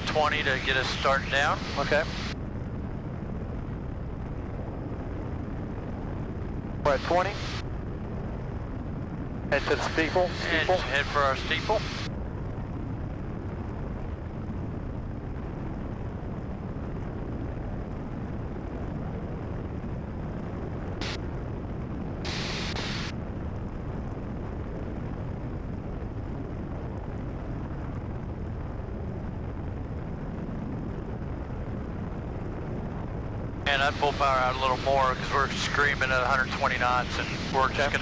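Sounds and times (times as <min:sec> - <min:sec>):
aircraft engine and propeller droning: 0:00.0 - 0:12.2, 0:21.0 - 0:21.4, 0:33.6 - 0:38.0.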